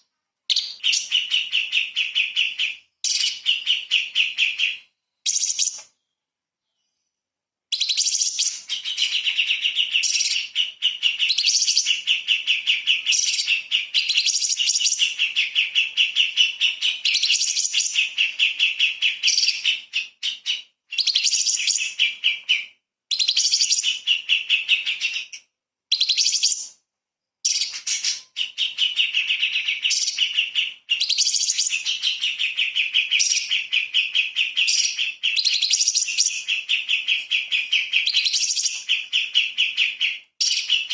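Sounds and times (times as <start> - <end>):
bird singing fast notes: 0.5 - 5.8, 7.7 - 25.3.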